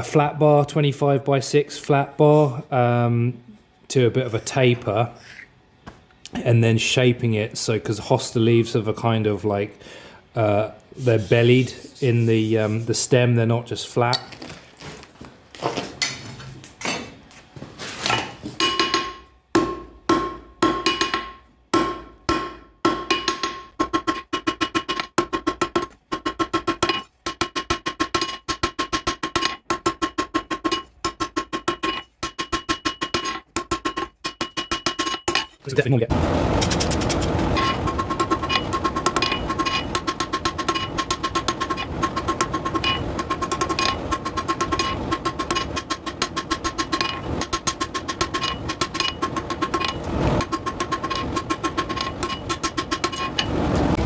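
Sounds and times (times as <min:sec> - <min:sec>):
hammer ringing on hot steel: 0:18.6 - 0:35.5, 0:37.6 - 0:53.5
steady rushing noise: 0:35.7 - 0:54.0.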